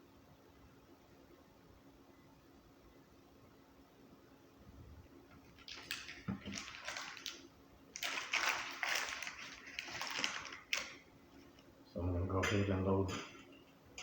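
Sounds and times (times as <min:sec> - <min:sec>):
wet squishing and sloshing: 0:05.4 - 0:11.0.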